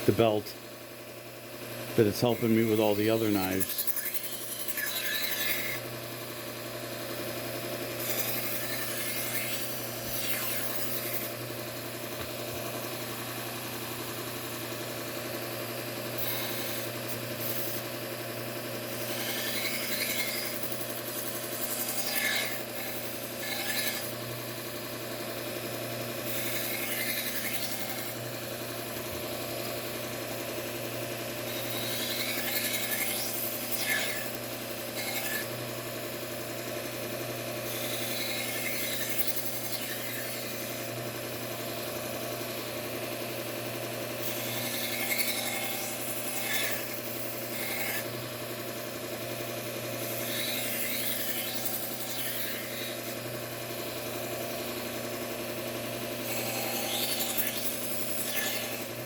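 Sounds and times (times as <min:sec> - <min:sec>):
belt grinder motor hum: 0:00.0 - 0:59.0
knife scraping abrasive belt: 0:02.0 - 0:05.9, 0:07.8 - 0:11.4, 0:16.1 - 0:17.9, 0:18.9 - 0:24.3, 0:25.7 - 0:29.4, 0:31.4 - 0:35.6, 0:37.6 - 0:41.0, 0:44.2 - 0:48.2, 0:49.9 - 0:53.3, 0:56.0 - 0:59.0.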